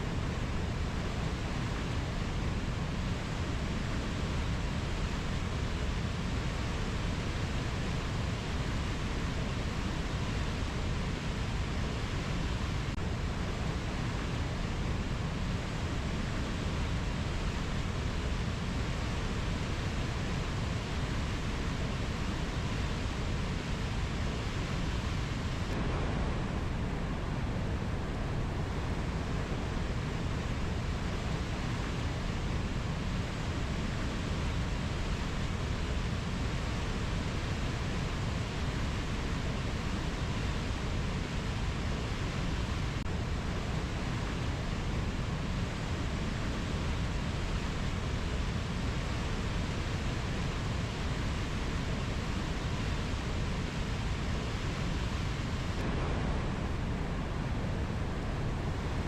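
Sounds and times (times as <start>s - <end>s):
steady rushing noise: 0.0s - 59.0s.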